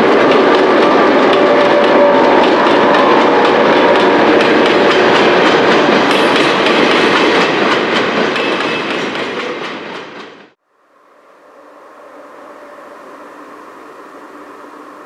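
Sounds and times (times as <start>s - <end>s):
train wagons rumbling on rails: 0.0s - 10.6s
wheels clickety-clack on rail joints: 0.0s - 10.6s.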